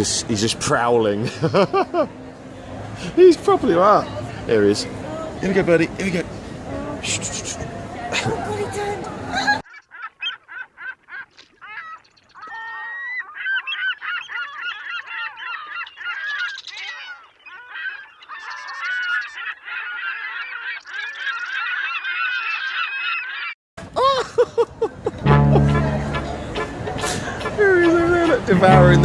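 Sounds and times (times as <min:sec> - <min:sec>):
gulls squawking: 0:07.2 - 0:23.6, 0:25.2 - 0:29.0.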